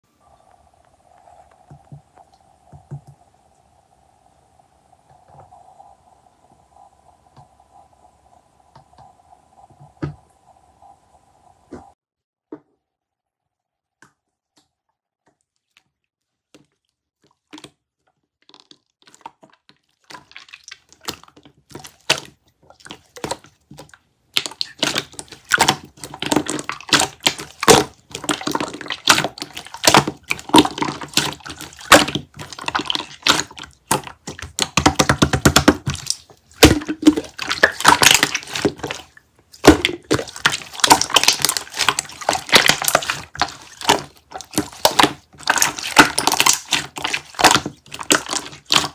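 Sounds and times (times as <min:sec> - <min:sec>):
wet squishing jelly clicks: 0:18.5 - 0:48.9.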